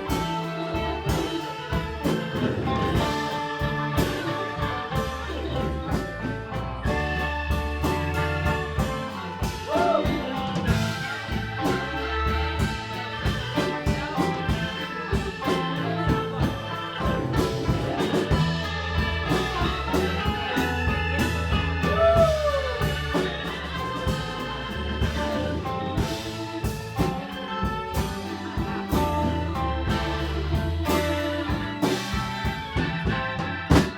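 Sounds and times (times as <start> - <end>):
live band playing: 0.0 - 33.9.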